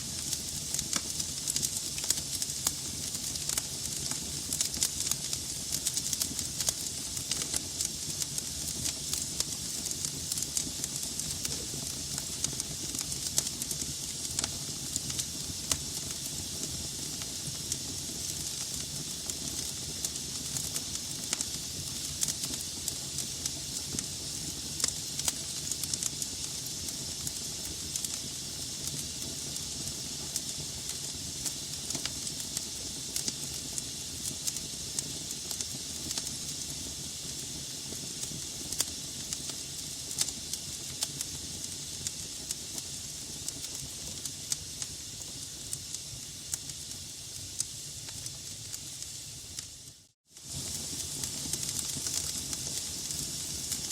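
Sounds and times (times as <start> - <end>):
wood crackling and popping: 0.0 - 36.7, 50.4 - 53.9
fire flames hissing and rumbling: 0.0 - 53.9.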